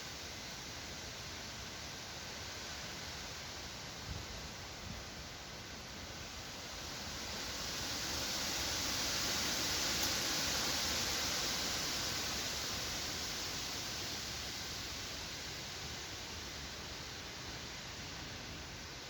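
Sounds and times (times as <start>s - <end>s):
wind rustling tree leaves: 0.0s - 19.0s.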